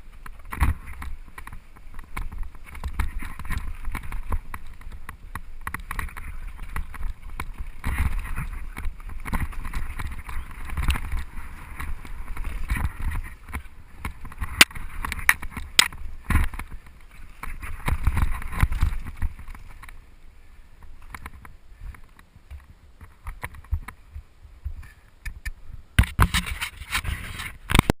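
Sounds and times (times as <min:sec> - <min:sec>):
bike rattling over bumps: 0:00.0 - 0:20.1
tyres and wind rumble: 0:00.0 - 0:27.9.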